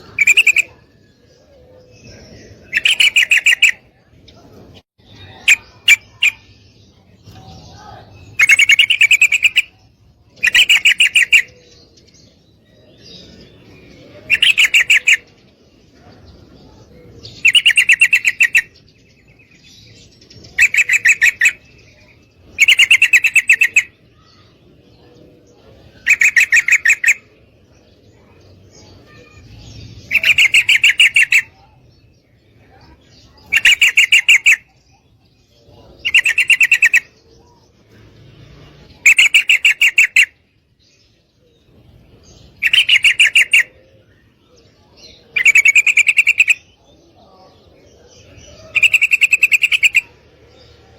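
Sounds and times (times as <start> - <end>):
bird chattering trill: 0.0 - 1.1, 2.5 - 4.0, 5.1 - 6.7, 7.3 - 11.8, 14.2 - 15.4, 17.3 - 18.9, 20.5 - 24.5, 25.8 - 27.4, 29.0 - 31.8, 32.6 - 35.0, 35.8 - 37.2, 38.9 - 40.5, 42.5 - 43.9, 45.2 - 46.8, 48.2 - 50.2.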